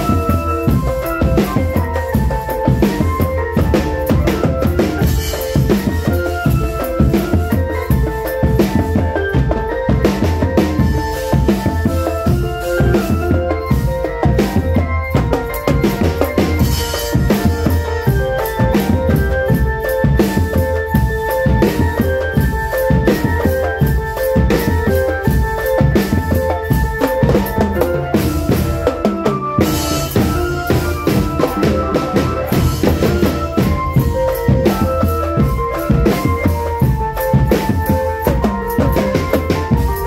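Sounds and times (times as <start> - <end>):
bass and snare drums beating: 0.0 - 40.0
melody of short pitched notes: 0.0 - 40.0.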